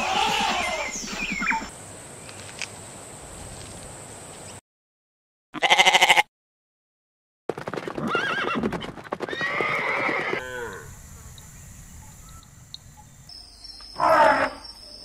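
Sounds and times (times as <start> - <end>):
horse neighing: 0.0 - 1.7, 9.3 - 10.9.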